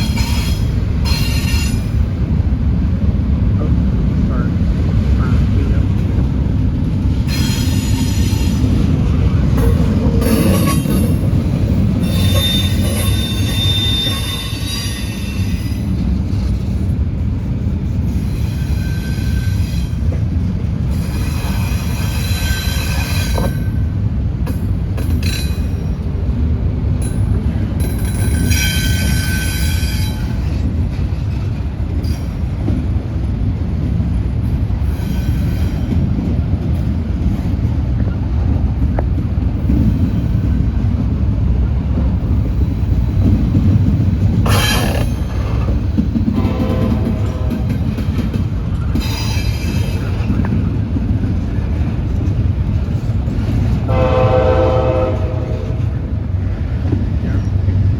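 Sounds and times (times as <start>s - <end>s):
freight train rumbling past: 0.0s - 57.9s
wheel squeal: 12.0s - 15.8s, 18.4s - 20.0s.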